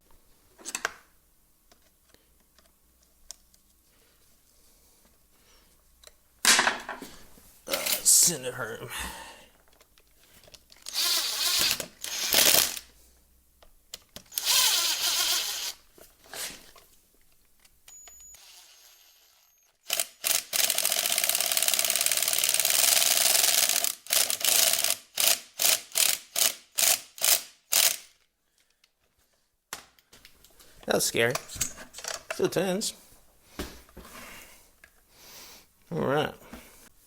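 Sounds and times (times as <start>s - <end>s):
power tool running in bursts: 10.9s - 12.8s, 14.3s - 15.8s, 18.4s - 19.5s.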